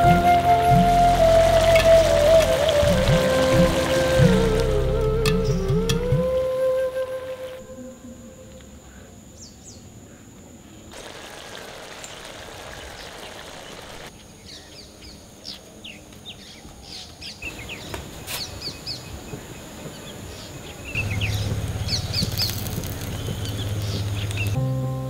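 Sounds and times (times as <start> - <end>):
low steady drone: 0.0 - 9.4, 21.0 - 25.0
steady outdoor hiss: 0.0 - 25.0
small birds chirping: 11.9 - 24.6.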